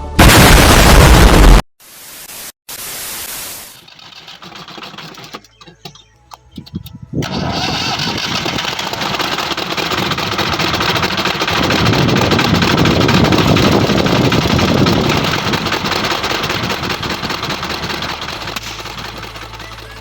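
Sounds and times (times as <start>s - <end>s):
tractor diesel engine running: 3.8s - 20.0s.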